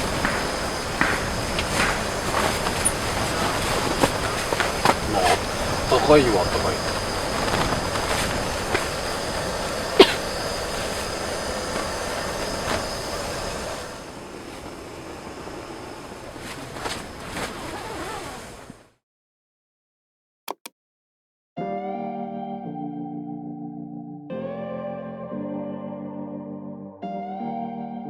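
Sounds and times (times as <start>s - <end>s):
steady rushing noise: 0.0s - 17.5s
sharp clicks: 20.5s - 20.7s.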